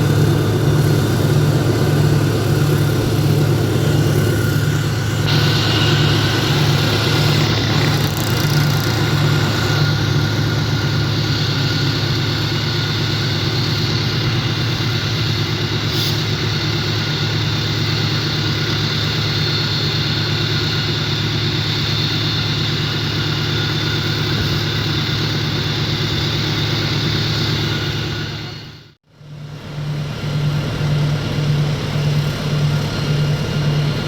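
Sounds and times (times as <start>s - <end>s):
locomotive diesel engine humming: 0.0s - 34.0s.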